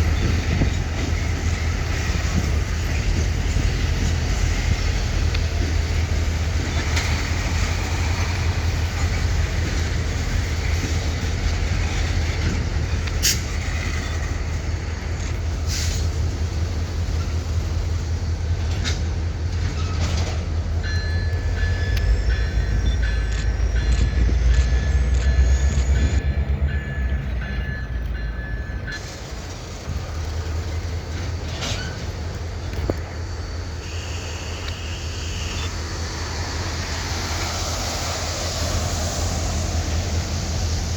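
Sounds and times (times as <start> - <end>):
diesel locomotive engine drone: 0.0 - 40.9
train cars clanking: 0.0 - 40.9.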